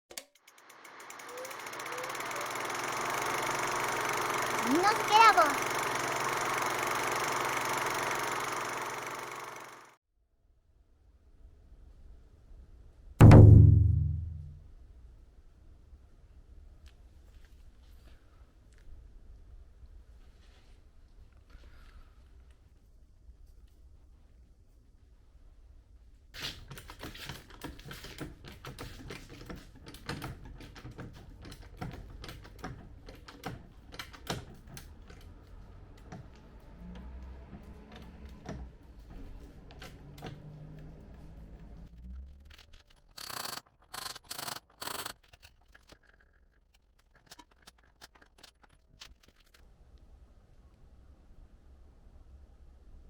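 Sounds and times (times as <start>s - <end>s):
rapid irregular clicking and tapping: 0.1s - 10.0s, 26.6s - 41.6s, 42.3s - 49.6s.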